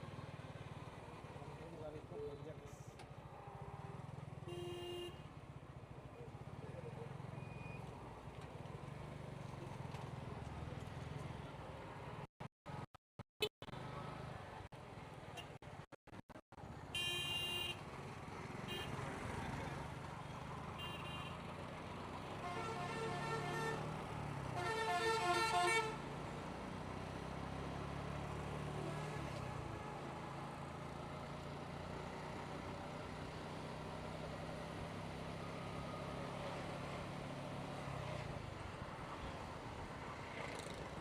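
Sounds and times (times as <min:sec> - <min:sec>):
road noise: 0:00.0 - 0:41.0
vehicle horns honking: 0:03.5 - 0:05.3, 0:16.9 - 0:17.8, 0:18.6 - 0:19.0, 0:20.8 - 0:21.5, 0:22.4 - 0:23.9, 0:24.6 - 0:26.0.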